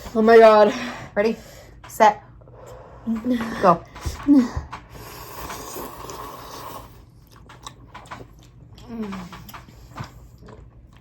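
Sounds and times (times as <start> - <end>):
wet chewing clicks: 4.8 - 11.0
noodles slurped: 5.0 - 8.9.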